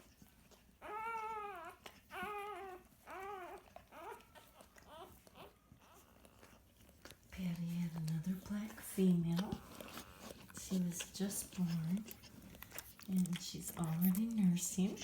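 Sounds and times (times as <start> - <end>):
newborn puppy squealing: 0.8 - 6.7, 9.5 - 12.9.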